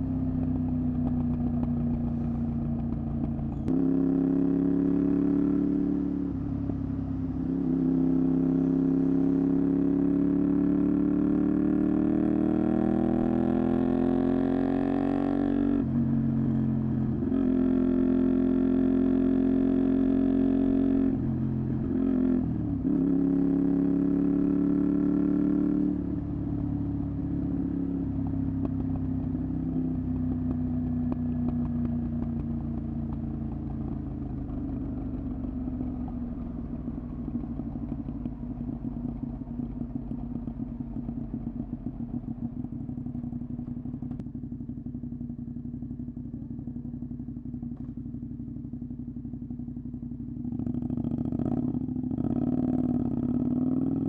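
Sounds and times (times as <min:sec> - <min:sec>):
motorcycle engine: 0:00.0 - 0:54.0.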